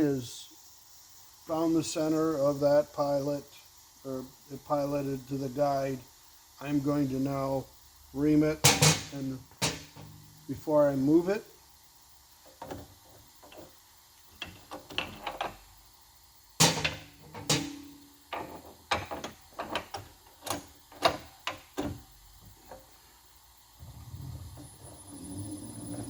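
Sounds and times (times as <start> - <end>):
spindle motor humming: 22.5 - 26.0.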